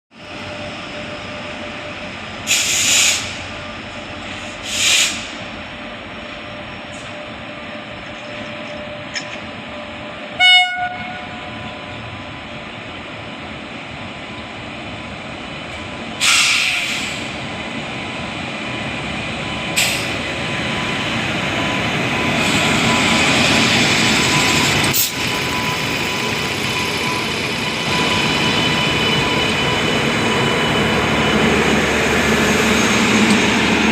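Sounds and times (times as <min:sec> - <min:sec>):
train locomotive running: 0:00.1 - 0:33.9
train horn blast: 0:10.2 - 0:11.7.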